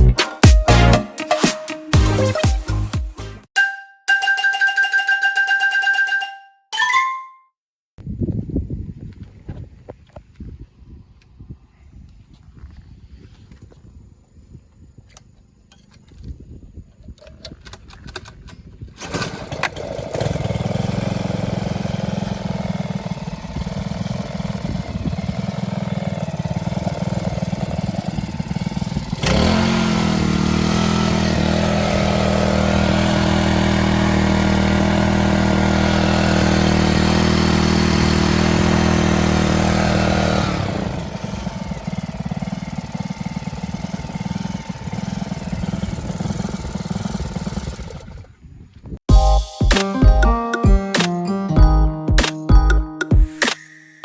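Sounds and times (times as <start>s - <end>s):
small petrol engine running: 18.9s - 48.4s.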